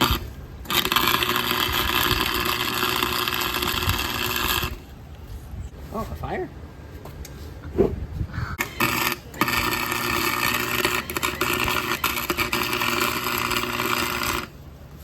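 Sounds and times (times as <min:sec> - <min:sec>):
electric welding arc crackling: 0:00.0 - 0:04.9, 0:08.6 - 0:14.6.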